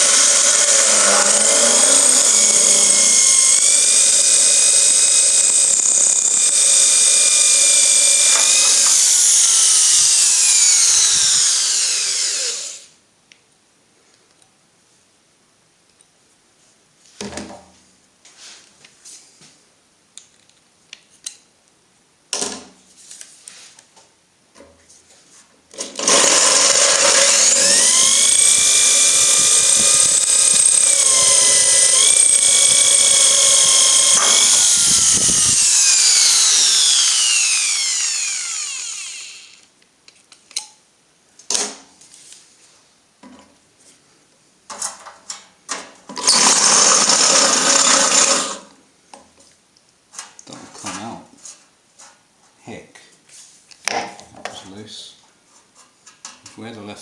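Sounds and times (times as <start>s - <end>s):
power drill drilling screws: 0.0s - 12.9s, 25.8s - 39.6s, 46.2s - 48.7s.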